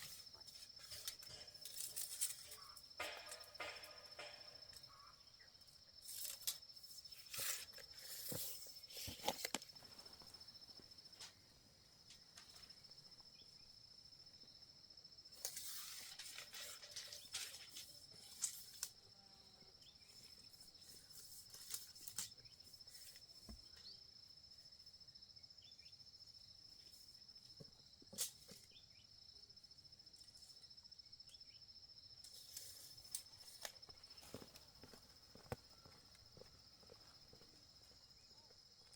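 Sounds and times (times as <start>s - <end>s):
sharp knocks: 3.0s - 4.8s.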